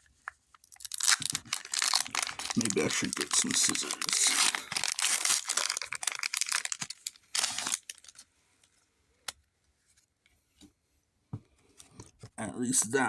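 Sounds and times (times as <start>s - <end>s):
foil wrapper crinkling: 0.6s - 8.3s.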